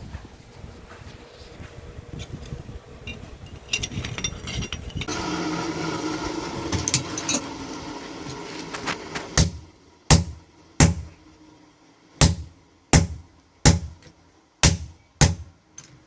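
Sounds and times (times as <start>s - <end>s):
machine hum: 1.4s - 15.6s
metal tools clinking: 2.2s - 5.2s, 6.8s - 7.5s.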